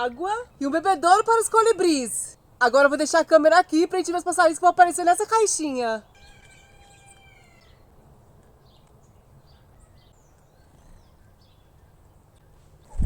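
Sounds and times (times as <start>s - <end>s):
small birds chirping: 3.0s - 13.0s.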